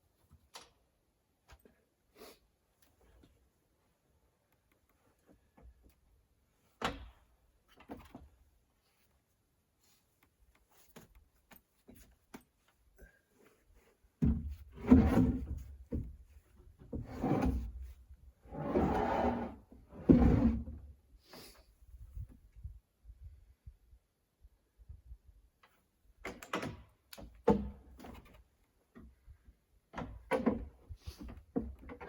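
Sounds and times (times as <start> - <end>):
wood scraping over wood: 18.5 - 20.6.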